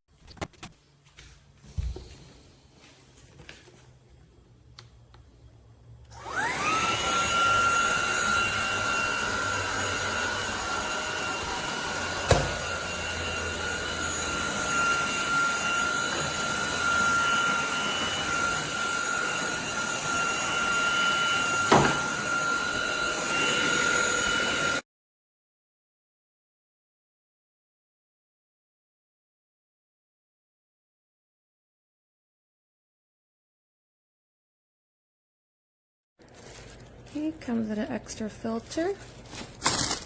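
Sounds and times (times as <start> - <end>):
vacuum motor whining: 6.0 - 24.8.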